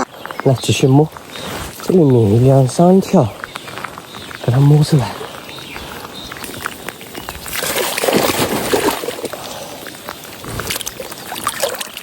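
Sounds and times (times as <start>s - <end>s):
hands sloshing in shallow water: 6.3s - 10.0s.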